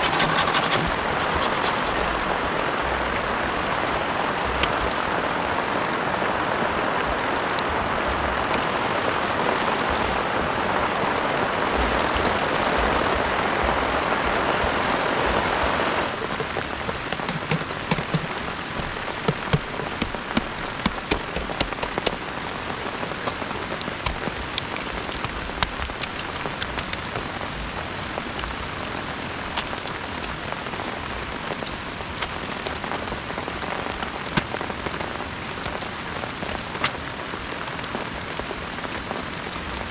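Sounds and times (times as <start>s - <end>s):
heavy rain falling: 0.0s - 39.9s
sharp raindrop hits: 16.1s - 27.5s.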